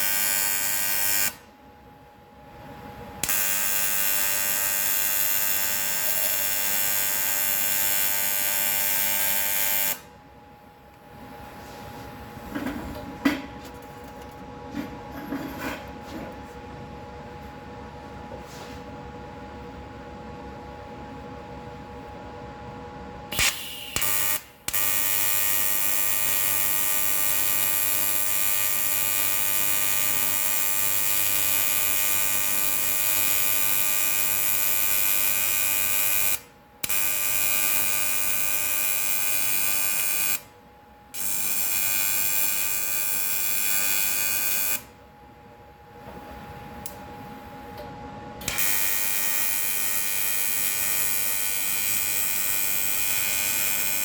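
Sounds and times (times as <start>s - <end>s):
electric welding arc buzzing: 0.0s - 1.4s, 3.2s - 10.1s, 23.3s - 40.5s, 41.2s - 44.9s, 48.4s - 54.0s.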